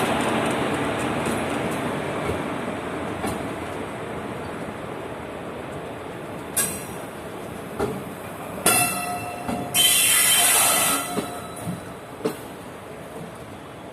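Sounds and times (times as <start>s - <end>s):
train rumbling on rails: 0.0s - 13.9s
ringing squeal: 8.7s - 11.7s.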